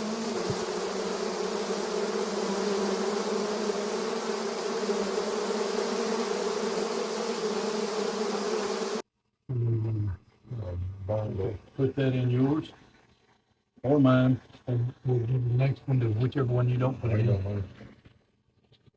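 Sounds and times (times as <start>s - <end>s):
bees buzzing: 0.0s - 9.0s.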